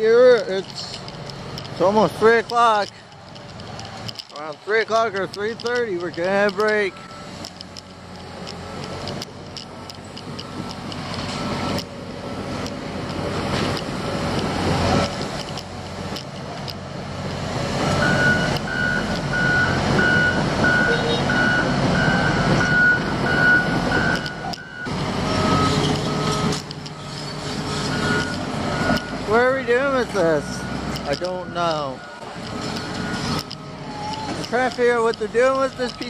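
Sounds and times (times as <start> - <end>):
construction machine engine working: 0.0 - 36.0
reversing alarm beeps: 6.8 - 7.4, 10.4 - 12.6, 17.9 - 29.6, 30.2 - 34.5.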